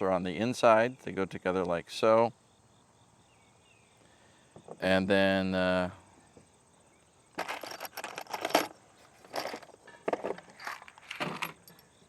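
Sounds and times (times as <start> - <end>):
metal bolt and washers clinking: 7.4 - 12.0.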